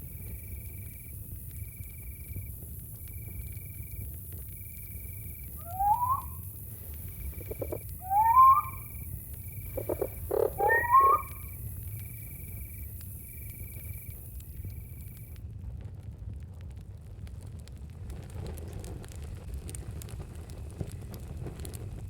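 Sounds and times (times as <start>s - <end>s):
crickets chirping: 0.0s - 15.3s
night animal calling: 5.6s - 6.4s, 7.2s - 9.0s, 9.6s - 11.6s.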